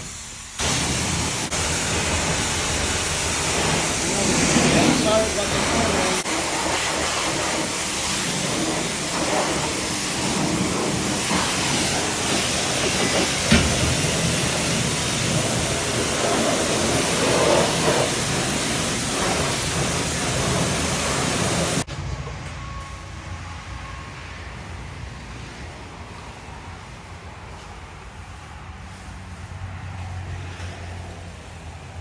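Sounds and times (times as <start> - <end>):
pressure washer spraying water: 0.0 - 21.9.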